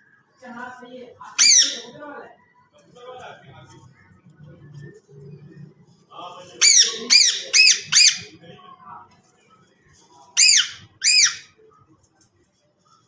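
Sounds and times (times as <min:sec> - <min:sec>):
parrot screeching: 0:01.3 - 0:02.0, 0:06.6 - 0:08.3, 0:10.4 - 0:11.5.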